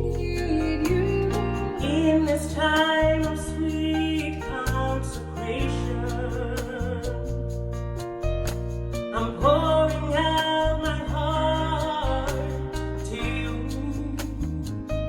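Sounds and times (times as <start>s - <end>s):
women singing gospel: 0.0s - 7.3s, 9.1s - 14.2s
band with bass guitar: 0.0s - 15.0s.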